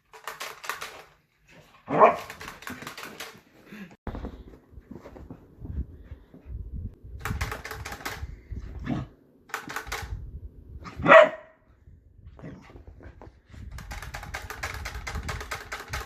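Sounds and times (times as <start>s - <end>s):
puppy barking: 1.9s - 2.3s, 11.0s - 11.6s.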